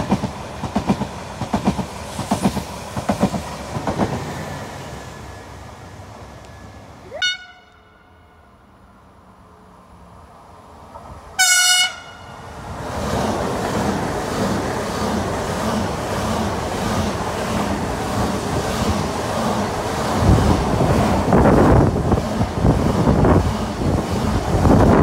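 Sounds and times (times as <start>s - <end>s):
wheels clickety-clack: 0.0s - 4.3s
train passing at speed: 0.0s - 25.0s
train horn toot: 7.1s - 8.5s, 11.4s - 12.4s
wind buffeting microphone: 12.4s - 25.0s.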